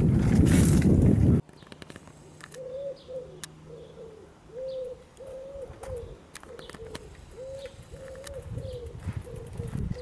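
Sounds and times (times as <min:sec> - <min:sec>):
low cooing: 0:02.6 - 0:10.0.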